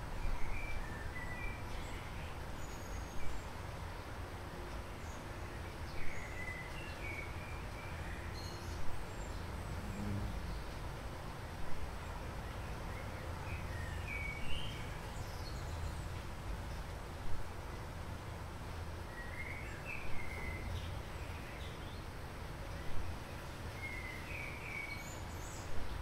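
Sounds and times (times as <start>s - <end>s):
low outdoor rumble: 9.2s - 12.7s.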